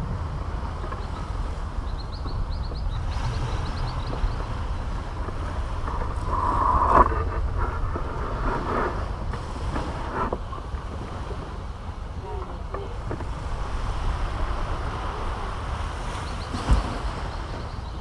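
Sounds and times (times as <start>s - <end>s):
surf washing on a beach: 0.0s - 18.0s
wind on microphone: 0.0s - 18.0s.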